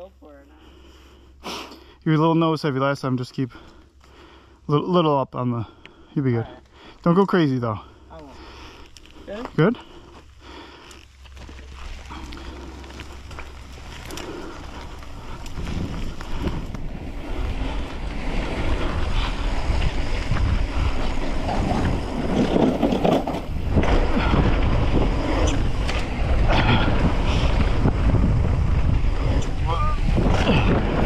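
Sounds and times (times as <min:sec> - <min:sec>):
tyres rumbling on dirt trail: 0:00.6 - 0:31.0
bike rattling and clicking: 0:10.3 - 0:31.0
wind rushing over microphone: 0:13.7 - 0:31.0.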